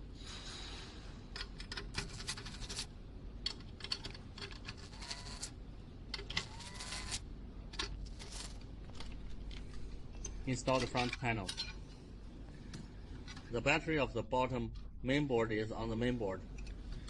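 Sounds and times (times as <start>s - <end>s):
metal and plastic parts rattling: 1.3s - 5.4s, 7.7s - 11.8s.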